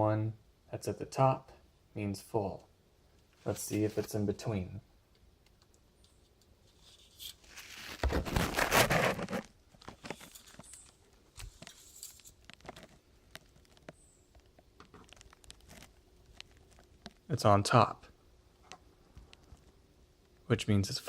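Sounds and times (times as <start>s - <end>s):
small clicks and taps: 10.0s - 17.3s.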